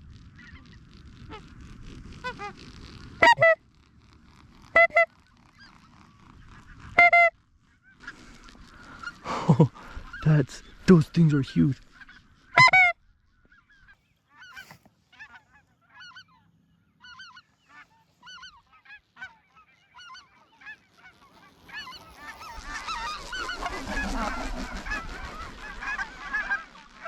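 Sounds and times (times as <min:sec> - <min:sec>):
snow geese honking: 0:03.2 - 0:03.6, 0:04.7 - 0:05.8, 0:06.4 - 0:07.3, 0:07.9 - 0:27.0.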